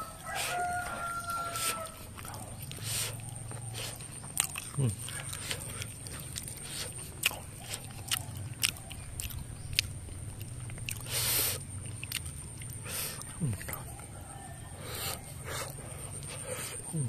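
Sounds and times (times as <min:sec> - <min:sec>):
person chewing: 0:00.0 - 0:14.0
wet mouth clicks: 0:02.1 - 0:13.8.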